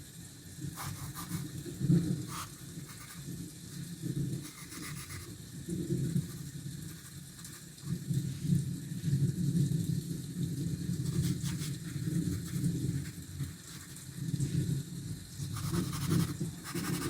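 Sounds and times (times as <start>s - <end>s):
pencil scratching on paper: 0.8s - 1.5s, 2.3s - 3.2s, 4.4s - 5.3s, 11.0s - 14.0s, 15.5s - 17.0s.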